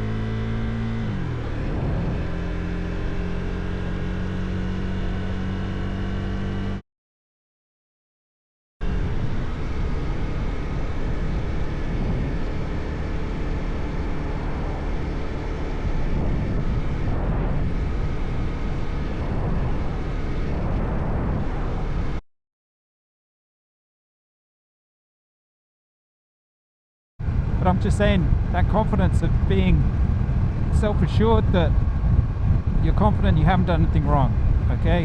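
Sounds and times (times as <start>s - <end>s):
motorcycle engine running: 0.0s - 6.8s, 8.8s - 22.1s, 27.2s - 35.0s
wind rushing over microphone: 0.1s - 6.0s, 8.8s - 22.2s, 27.2s - 35.0s.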